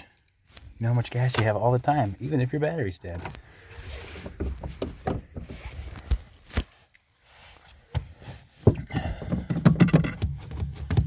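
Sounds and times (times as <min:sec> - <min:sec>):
accelerator pedal knocks and clunks: 0:04.2 - 0:05.7, 0:07.9 - 0:11.0.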